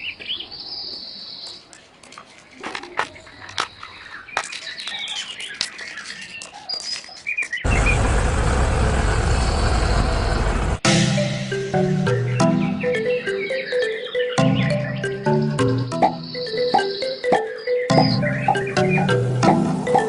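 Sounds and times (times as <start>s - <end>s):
birds chirping faintly: 0.0s - 8.2s, 11.5s - 20.0s
plucked music: 10.8s - 20.0s.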